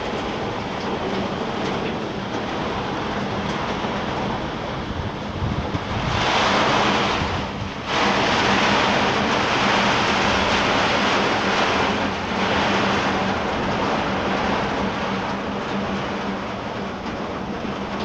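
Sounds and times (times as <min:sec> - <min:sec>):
gusting wind: 0:00.0 - 0:18.0
heavy rain downpour: 0:00.0 - 0:18.0
wind buffeting microphone: 0:00.0 - 0:18.0.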